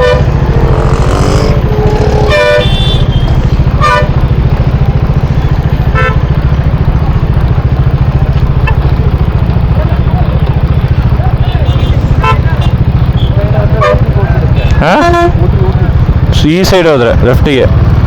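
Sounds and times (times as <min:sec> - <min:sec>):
vehicle horns tooting: 0:00.0 - 0:04.6, 0:05.9 - 0:06.5, 0:11.4 - 0:15.7
motorcycle engine running: 0:00.0 - 0:18.0.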